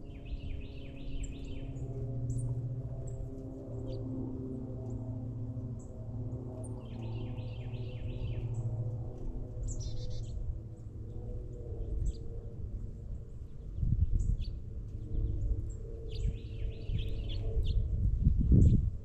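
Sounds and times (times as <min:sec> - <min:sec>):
songbirds chirping: 0:00.0 - 0:04.1, 0:05.6 - 0:10.5, 0:13.4 - 0:17.9
steady low hum: 0:00.0 - 0:19.0.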